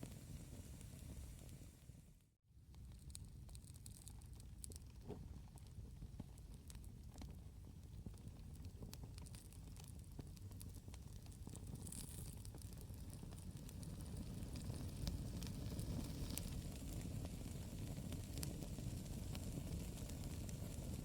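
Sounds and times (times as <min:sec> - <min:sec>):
low rumble of flames: 0:00.0 - 0:21.0
burning wood popping and snapping: 0:08.2 - 0:20.5.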